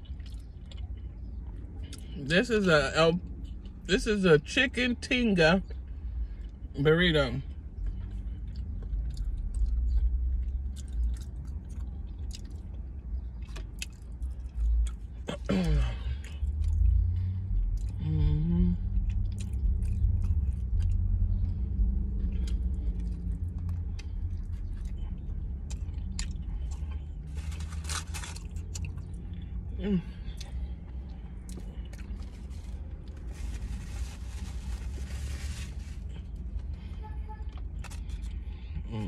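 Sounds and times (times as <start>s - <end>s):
chewing and wet mouth clicks: 0.0s - 2.1s, 7.9s - 15.0s, 19.0s - 27.1s
steady low hum: 0.0s - 39.0s.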